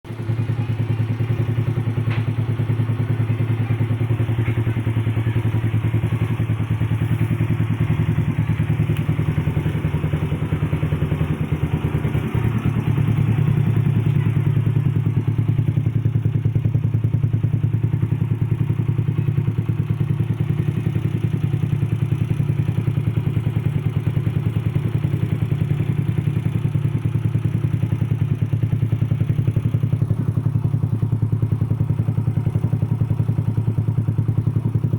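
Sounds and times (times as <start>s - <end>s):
scooter engine idling: 0.1s - 34.9s.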